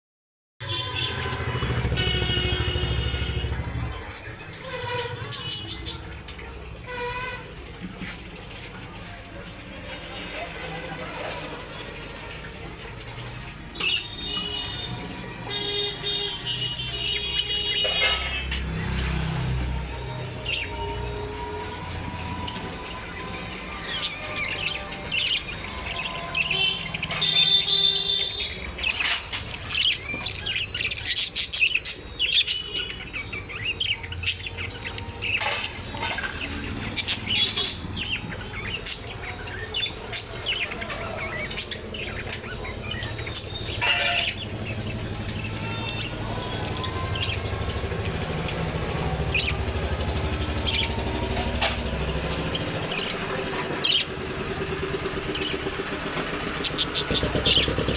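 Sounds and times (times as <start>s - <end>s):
low traffic rumble: 0.7s - 57.9s
small birds chirping: 21.8s - 57.9s.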